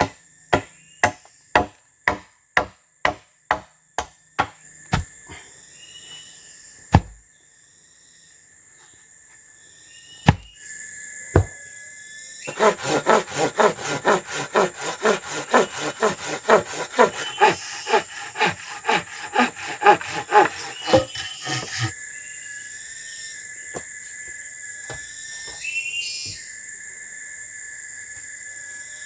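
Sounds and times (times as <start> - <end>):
hand saw cutting wood: 12.5 - 21.9.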